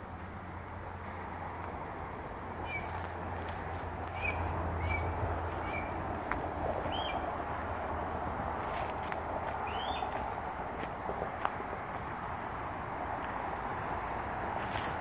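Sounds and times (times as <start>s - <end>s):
bird giving harsh calls: 4.1s - 6.0s, 9.6s - 10.1s
bird rising calls: 4.1s - 6.0s, 6.9s - 7.2s, 9.6s - 10.1s.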